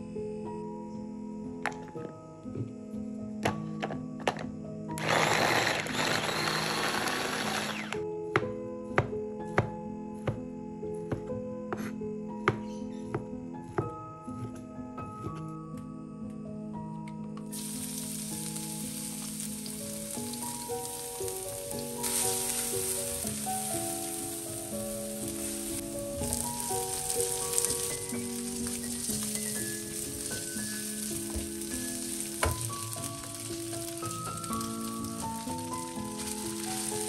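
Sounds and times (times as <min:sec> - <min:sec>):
soft background music: 0:00.0 - 0:37.0
food sizzling in hot oil: 0:17.5 - 0:37.0.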